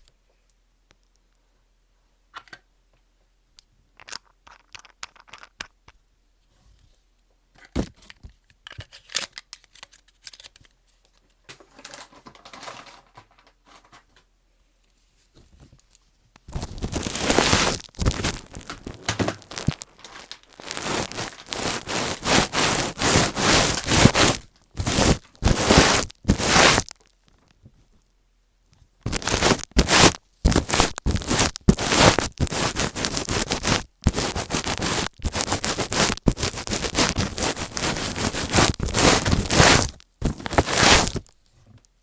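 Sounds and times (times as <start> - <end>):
scratching on earphone microphone: 16.5 - 26.9, 29.0 - 41.4.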